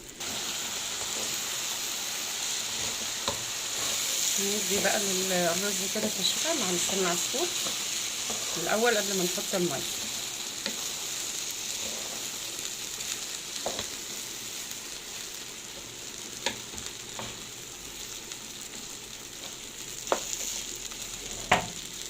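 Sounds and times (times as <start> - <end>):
rice and pasta sizzling in a pot: 0.0 - 22.0.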